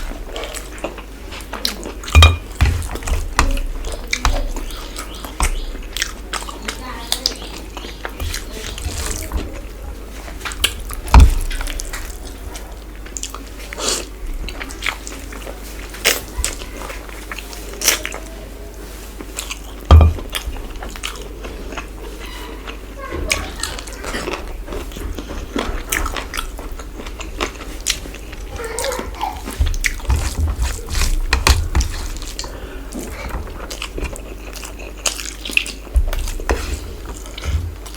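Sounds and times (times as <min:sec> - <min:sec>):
chewing with wet mouth clicks: 0:00.1 - 0:09.6, 0:10.4 - 0:18.3, 0:19.3 - 0:22.8, 0:23.4 - 0:37.9.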